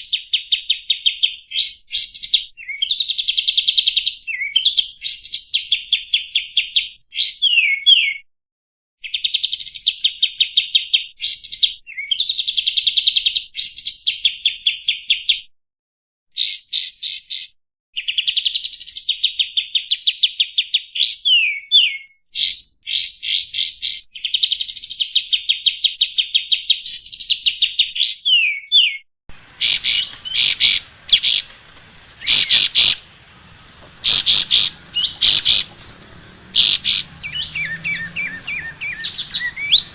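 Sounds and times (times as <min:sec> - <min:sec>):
songbird singing trills and whistles: 0:00.0 - 0:08.3, 0:09.0 - 0:15.5, 0:16.3 - 0:31.6, 0:32.2 - 0:33.0, 0:33.6 - 0:39.9
sharp bird chirps: 0:16.4 - 0:39.9.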